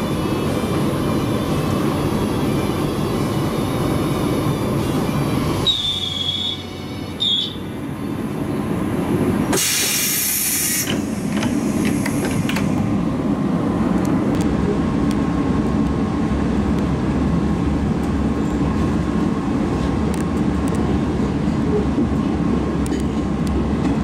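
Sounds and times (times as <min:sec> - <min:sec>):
train rumbling on rails: 0:00.0 - 0:24.0
short loud hiss: 0:09.5 - 0:10.9.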